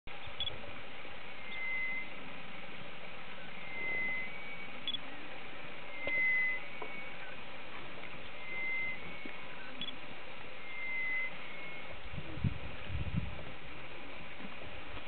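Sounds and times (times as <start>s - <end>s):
steady background hiss: 0.1s - 15.0s
bird whistle call: 1.4s - 2.1s, 3.4s - 5.0s, 5.9s - 7.4s, 8.4s - 10.0s, 10.6s - 11.9s.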